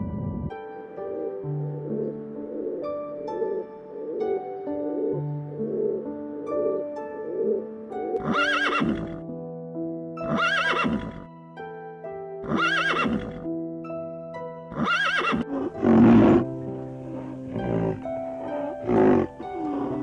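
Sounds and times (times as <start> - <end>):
background music with plucked notes: 0.0 - 20.0
horse whinnying: 8.2 - 9.2, 10.2 - 11.3, 12.4 - 13.5, 14.7 - 16.5, 17.1 - 20.0.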